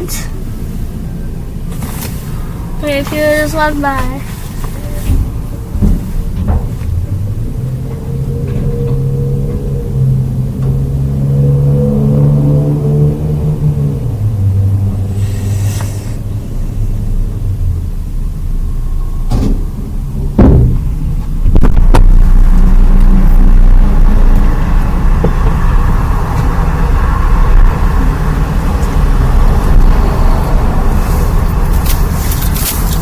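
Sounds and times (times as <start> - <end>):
car low rumble: 0.0 - 33.0
sharp knocks: 20.4 - 22.1.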